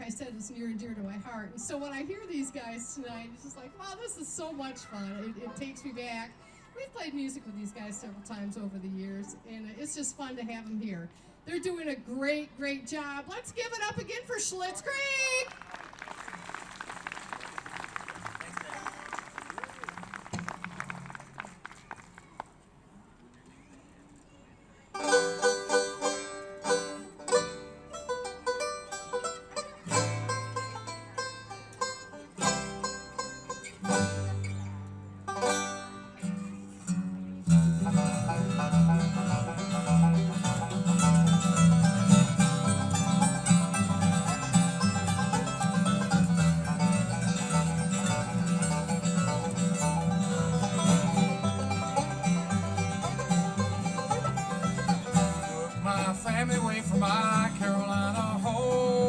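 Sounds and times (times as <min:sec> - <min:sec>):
bluegrass string band playing: 0:00.0 - 0:10.9, 0:24.9 - 0:59.0.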